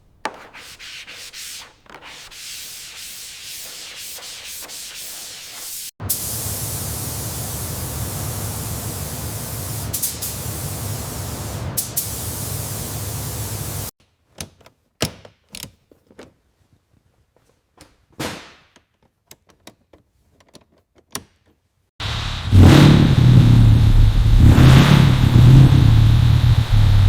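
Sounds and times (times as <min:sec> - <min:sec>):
spraying hiss: 0:00.6 - 0:13.9, 0:22.0 - 0:27.0
car engine rumbling: 0:22.0 - 0:27.0.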